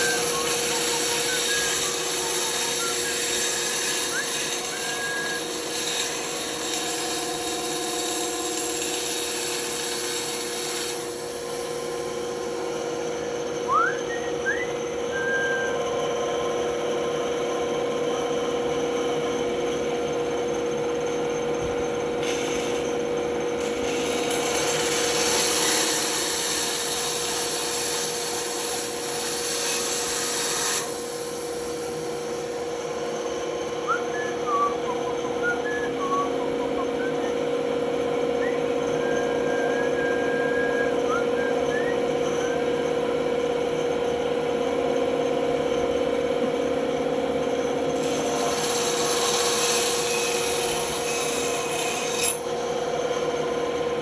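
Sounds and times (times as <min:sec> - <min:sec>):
power tool working wood: 0:00.0 - 0:16.5, 0:22.2 - 0:37.4, 0:48.0 - 0:52.7.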